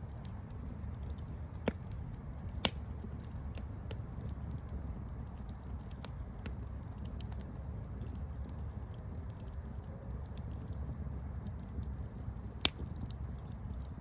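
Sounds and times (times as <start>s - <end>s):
campfire crackling: 0.0s - 14.0s
loud fire pops: 0.2s - 4.8s, 12.5s - 14.0s.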